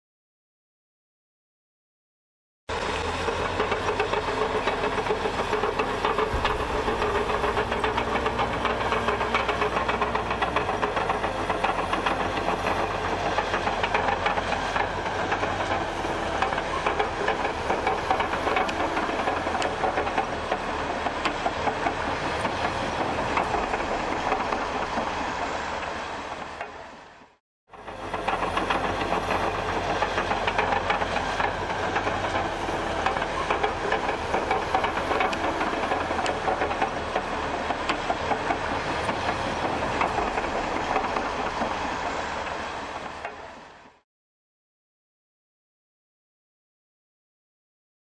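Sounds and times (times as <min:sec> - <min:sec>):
bulldozer engine: 0:02.7 - 0:44.0
metallic clatter: 0:03.2 - 0:25.3.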